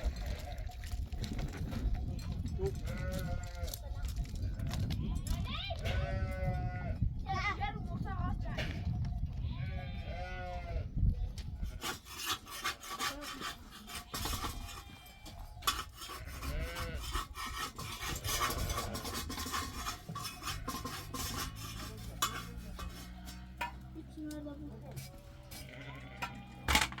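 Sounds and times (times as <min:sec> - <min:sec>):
sheep bleating: 0:02.8 - 0:03.8, 0:05.0 - 0:07.0, 0:09.4 - 0:10.9, 0:16.1 - 0:17.2, 0:25.4 - 0:26.8.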